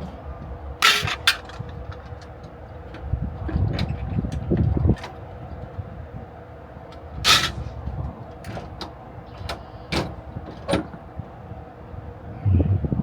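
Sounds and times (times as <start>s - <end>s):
sharp knocks and clacks of gear: 0.8s - 5.8s, 6.9s - 11.0s.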